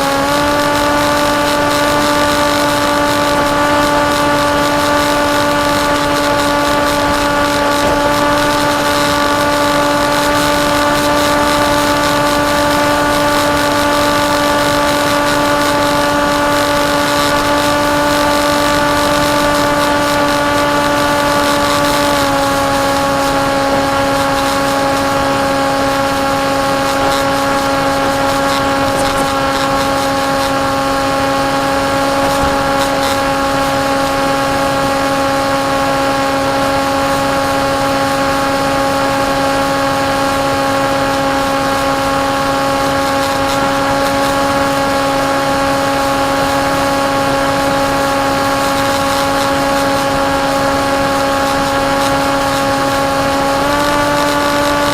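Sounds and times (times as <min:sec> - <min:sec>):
electric motor and propeller whining: 0:00.0 - 0:54.9
rushing air: 0:14.2 - 0:35.0.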